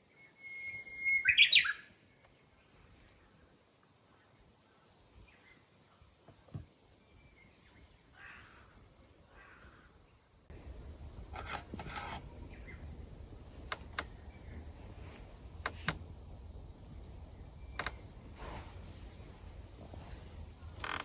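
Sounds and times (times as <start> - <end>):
rustling: 10.5 - 16.1
steady low rumble: 10.5 - 20.8.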